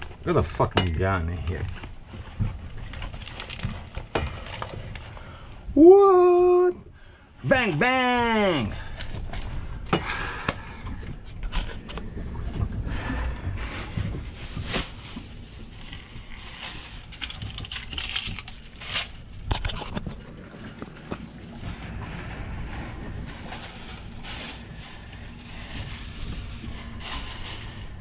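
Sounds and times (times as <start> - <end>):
low rumble of wind noise: 8.8 - 28.0.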